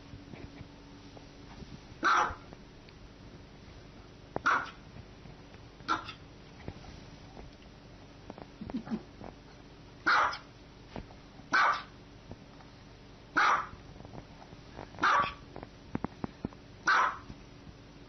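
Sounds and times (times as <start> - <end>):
small dog barking: 2.0 - 2.5, 4.4 - 4.8, 5.9 - 6.2, 10.0 - 10.5, 11.5 - 12.0, 13.3 - 13.8, 15.0 - 15.4, 16.8 - 17.3.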